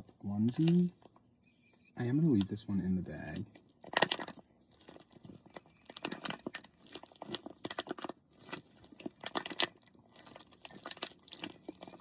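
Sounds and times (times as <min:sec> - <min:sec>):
plastic bag crinkling: 0:03.3 - 0:12.0.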